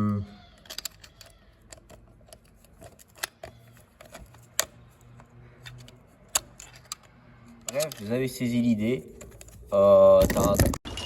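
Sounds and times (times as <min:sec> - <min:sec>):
metallic clicks and taps of parts: 0:00.6 - 0:08.1.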